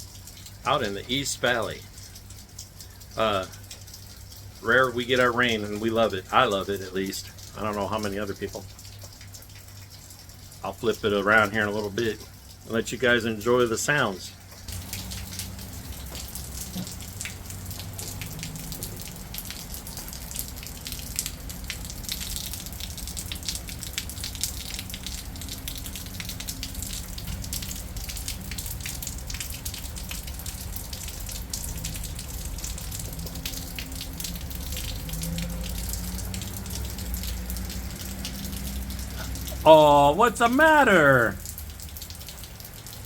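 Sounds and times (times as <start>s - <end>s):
steady rain falling: 0.0s - 43.0s
water drops ticking and dripping: 0.0s - 43.0s.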